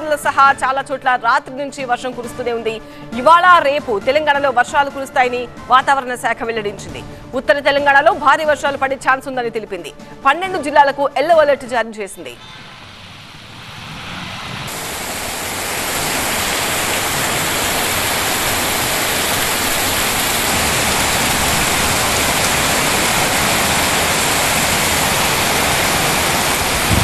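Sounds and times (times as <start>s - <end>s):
heavy rain pouring: 12.4s - 27.0s.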